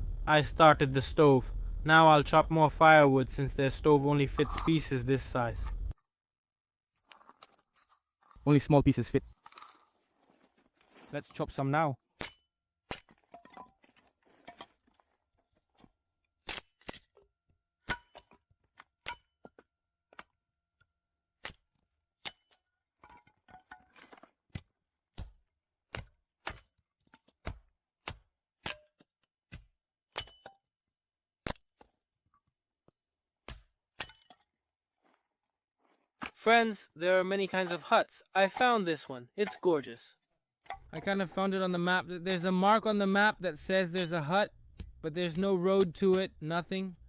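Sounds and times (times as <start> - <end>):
blade chopping wood: 24.0 - 30.5.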